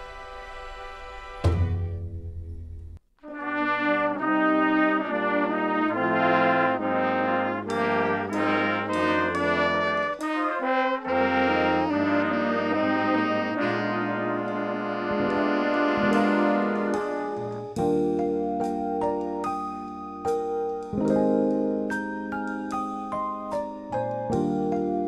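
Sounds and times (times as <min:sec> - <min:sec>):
brass instruments playing melody: 0:00.0 - 0:02.0, 0:03.2 - 0:18.2.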